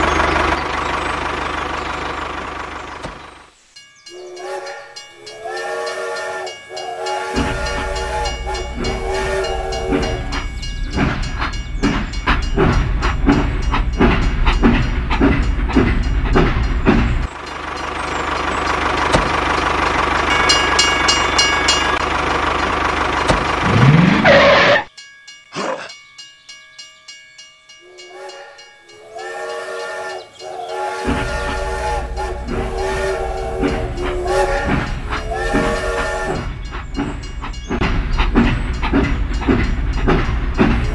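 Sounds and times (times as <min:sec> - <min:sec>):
toy train chugging: 0:00.0 - 0:25.0, 0:27.7 - 0:40.9
toy train electronic whistle: 0:04.1 - 0:10.9, 0:27.8 - 0:36.6.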